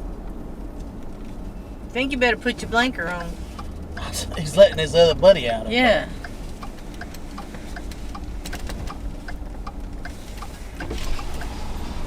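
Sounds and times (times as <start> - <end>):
engine and road rumble: 0.0 - 12.0
turn signal clicking: 0.1 - 12.0.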